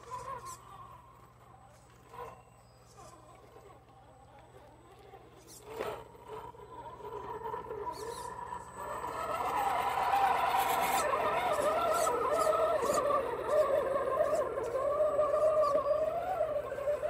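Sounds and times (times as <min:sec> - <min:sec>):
electric motor whining: 0:04.9 - 0:17.0.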